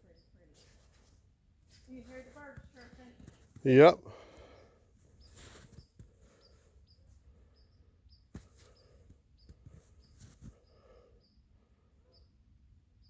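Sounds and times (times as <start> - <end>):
small bird chirping: 0.0 - 3.4, 5.1 - 12.4
footsteps crunching in snow: 5.3 - 5.8.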